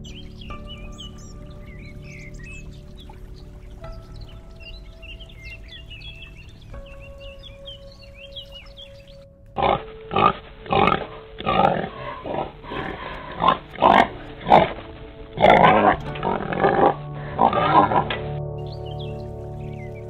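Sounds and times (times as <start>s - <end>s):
pigs grunting: 9.6s - 18.2s.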